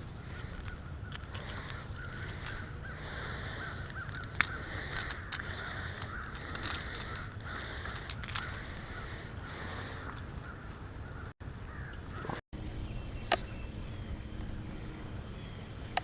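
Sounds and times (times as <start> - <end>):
steady low rumble: 0.0 - 16.0
crow-like caws: 0.4 - 12.4.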